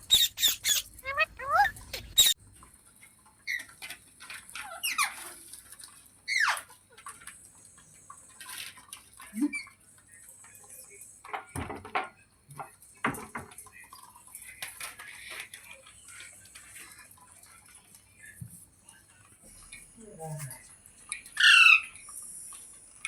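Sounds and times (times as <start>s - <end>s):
parrot squeaks and chirps: 0.0s - 2.4s, 4.6s - 5.3s, 6.3s - 6.7s, 21.4s - 22.0s.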